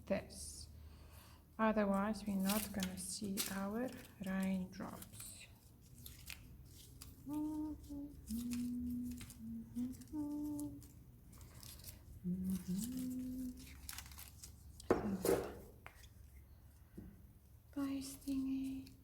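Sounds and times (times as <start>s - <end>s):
paper rustling and crinkling: 1.8s - 16.5s
person humming low notes: 7.3s - 10.8s.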